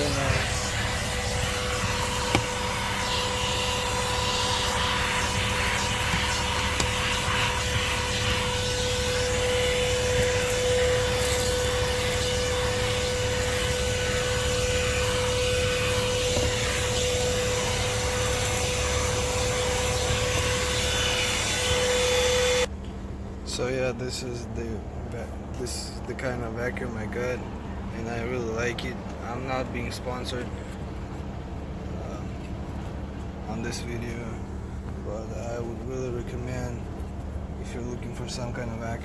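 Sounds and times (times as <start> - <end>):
vacuum cleaner running: 0.0 - 22.7.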